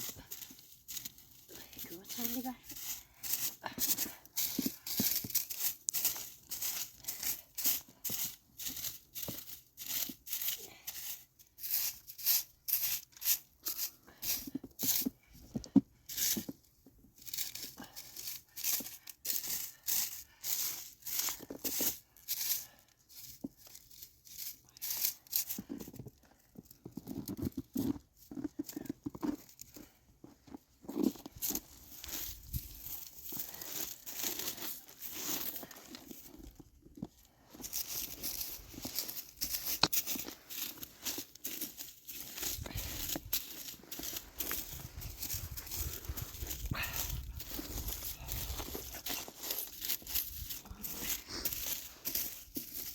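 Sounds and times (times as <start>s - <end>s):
footsteps crunching in snow: 0.0s - 15.2s, 29.3s - 52.9s.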